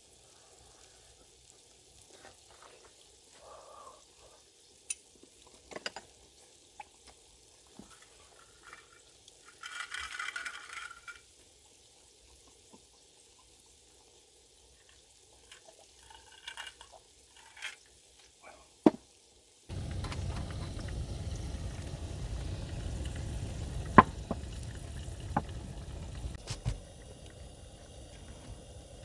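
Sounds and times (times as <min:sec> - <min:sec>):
food sizzling in a pan: 0:00.0 - 0:29.0
sharp pops of frying: 0:04.8 - 0:11.6, 0:16.6 - 0:29.0.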